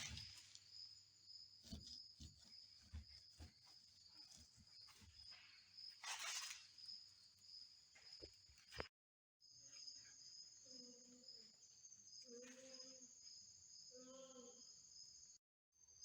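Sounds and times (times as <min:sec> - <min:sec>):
crickets chirring: 0:00.0 - 0:08.8, 0:09.4 - 0:16.0.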